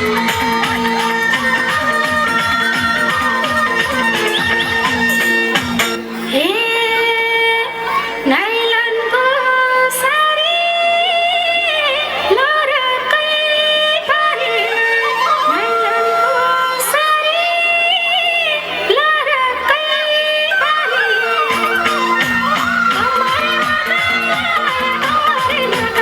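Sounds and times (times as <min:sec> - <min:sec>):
musical accompaniment: 0:00.0 - 0:09.1, 0:19.8 - 0:26.0
high voice singing: 0:00.0 - 0:26.0.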